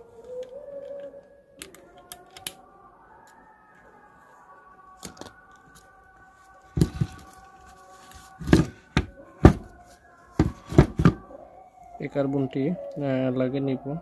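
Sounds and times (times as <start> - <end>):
clicks and knocks of parts: 0.3 - 2.6.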